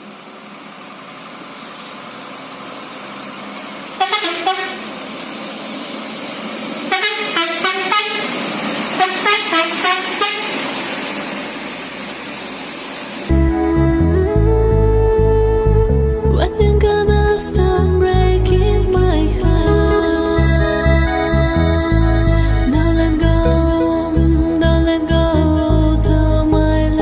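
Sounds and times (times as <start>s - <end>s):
truck engine running: 0.0s - 27.0s
musical truck horn: 4.0s - 4.9s, 6.9s - 10.6s, 19.8s - 24.1s.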